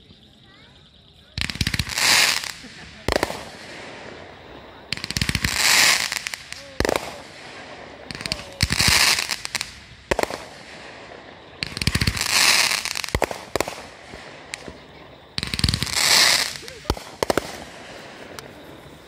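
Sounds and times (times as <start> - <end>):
firework crackling: 1.3 - 19.0
firework bangs: 1.4 - 19.0
firework launch pops: 5.0 - 18.7.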